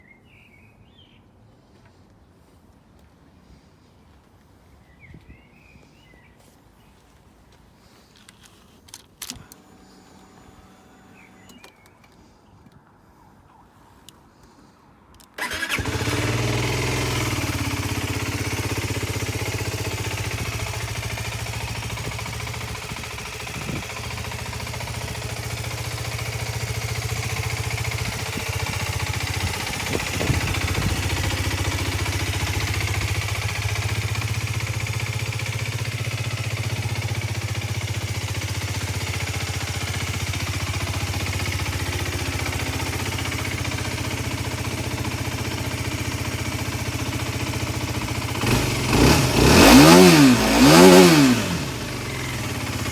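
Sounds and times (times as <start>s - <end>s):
motorcycle engine starting and idling: 7.8s - 12.2s, 15.2s - 52.9s.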